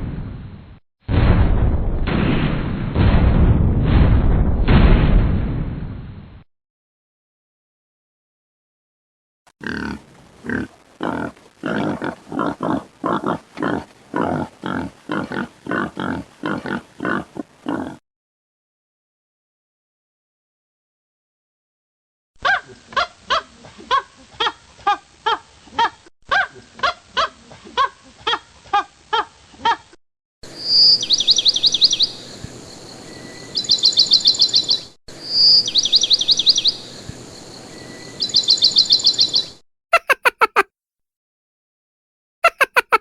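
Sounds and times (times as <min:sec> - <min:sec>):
repeated pitched bird calls: 0:38.2 - 0:40.6.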